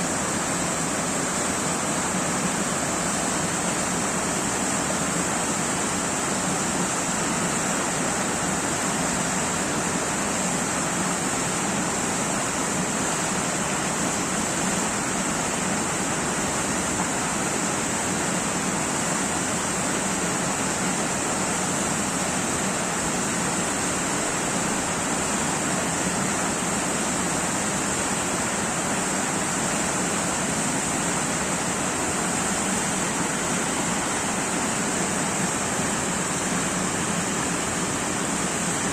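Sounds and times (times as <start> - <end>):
high hiss: 18.8 - 38.9
waterfall rushing: 23.8 - 38.9.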